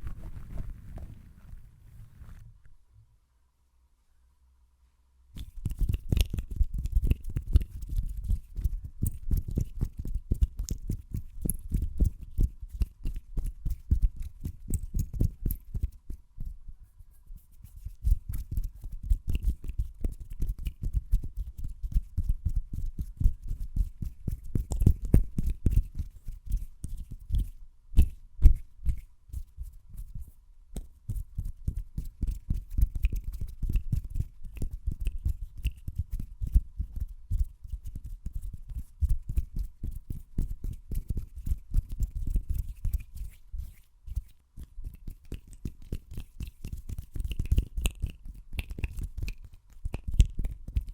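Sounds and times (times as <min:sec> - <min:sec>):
hands stroking near microphone: 0:00.0 - 0:02.6, 0:37.5 - 0:47.7.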